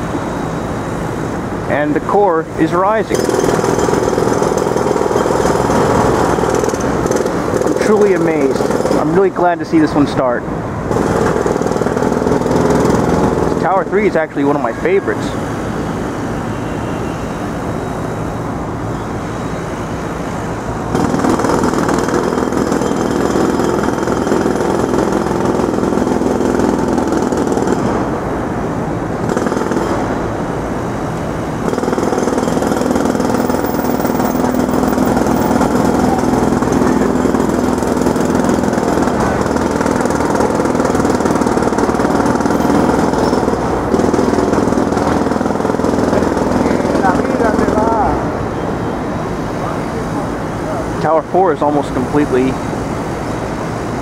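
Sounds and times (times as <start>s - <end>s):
jackhammer pounding: 1.7s - 10.2s, 10.9s - 15.4s, 20.9s - 28.4s, 29.1s - 48.5s.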